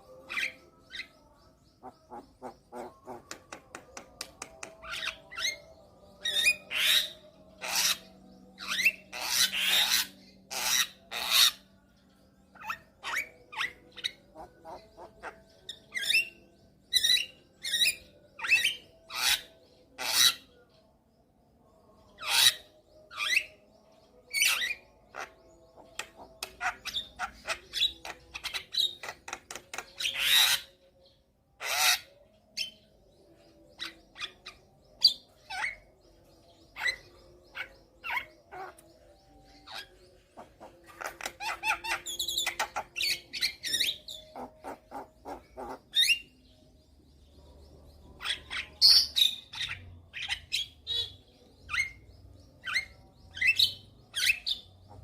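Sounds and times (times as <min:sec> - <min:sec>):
bird harsh calls and whistles: 0:00.0 - 0:11.8, 0:12.5 - 0:20.6, 0:22.1 - 0:55.0.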